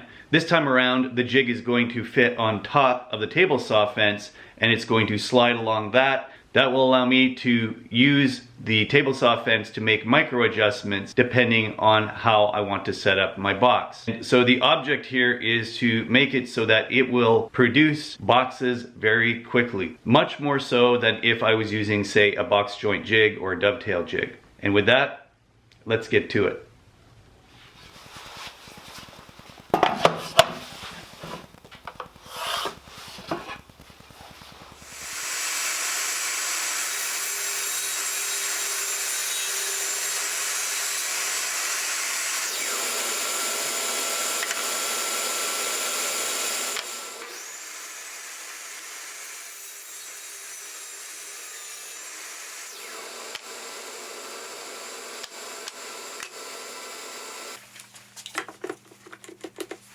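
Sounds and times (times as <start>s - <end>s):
power tool cutting wood: 31.3s - 57.6s
wood knocking and clicking: 58.4s - 59.8s.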